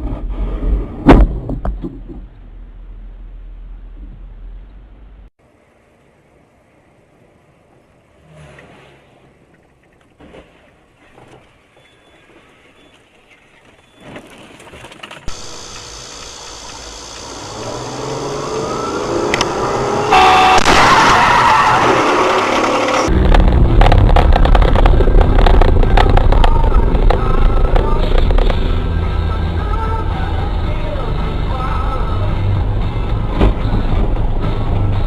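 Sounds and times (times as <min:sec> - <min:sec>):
road noise: 0:00.0 - 0:35.0
car engine: 0:15.3 - 0:35.0.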